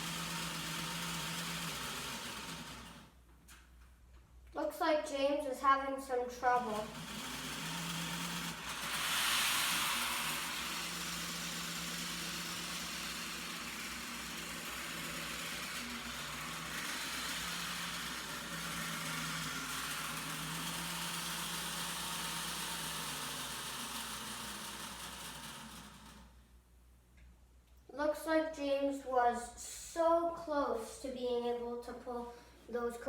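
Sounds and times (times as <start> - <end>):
wheels running on track: 0.0 - 3.1, 6.5 - 26.4
model train motor whirring: 0.0 - 3.2, 6.4 - 26.4.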